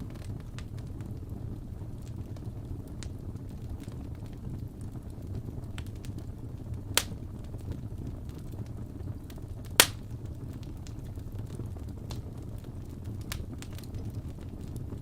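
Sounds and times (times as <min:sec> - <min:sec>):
fire crackling: 0:00.0 - 0:15.0
flames rumbling: 0:00.0 - 0:15.0
logs popping loudly: 0:09.8 - 0:10.0.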